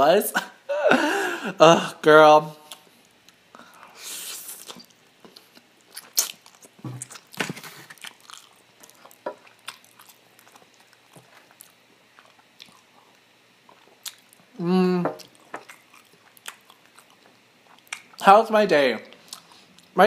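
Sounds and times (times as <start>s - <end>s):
person chewing food: 2.7s - 18.2s, 19.1s - 19.9s
breathy hiss: 3.5s - 4.8s.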